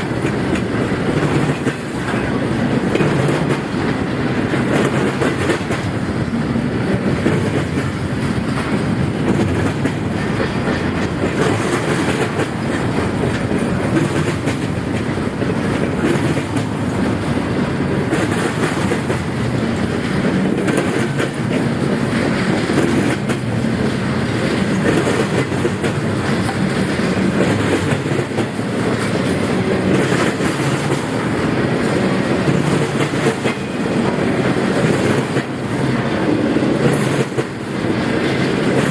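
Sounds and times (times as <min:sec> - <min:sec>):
freight train rolling past: 0:00.0 - 0:38.9
wheels clicking over rail joints: 0:00.0 - 0:38.9.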